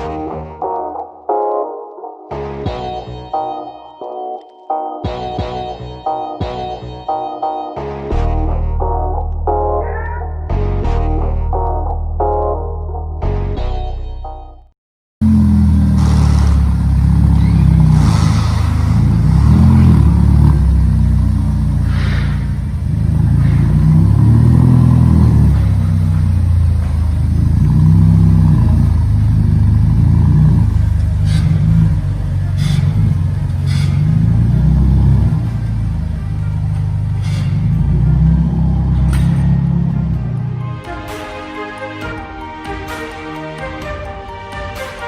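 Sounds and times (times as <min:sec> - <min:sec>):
car engine revving: 0:15.2 - 0:41.2.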